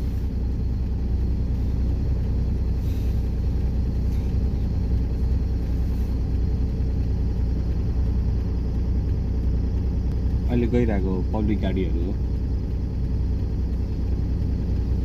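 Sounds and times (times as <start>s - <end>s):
passing traffic: 0.0s - 15.0s
road travel rumble: 0.0s - 15.0s.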